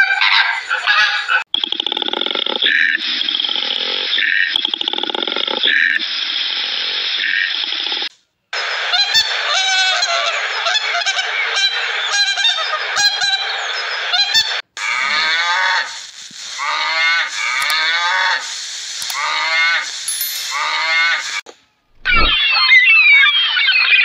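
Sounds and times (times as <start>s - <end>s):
steady hiss: 18.4s - 20.8s.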